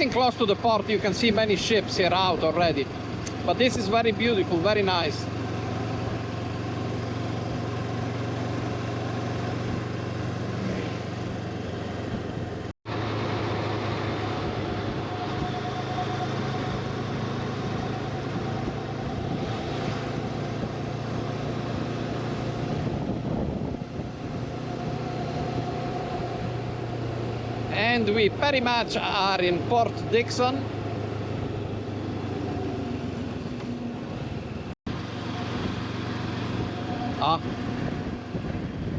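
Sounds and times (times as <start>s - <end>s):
motorcycle engine hum: 0.0s - 38.9s
wind noise: 13.8s - 29.1s, 34.0s - 38.9s.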